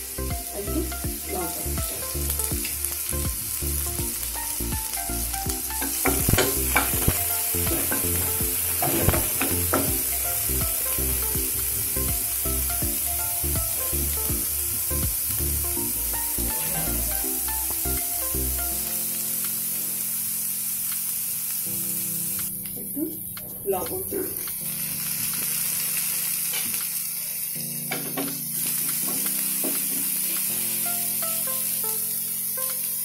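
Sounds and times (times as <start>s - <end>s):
vegetables sizzling in oil: 0.0s - 33.0s
wooden spatula scraping a pan: 5.8s - 9.9s.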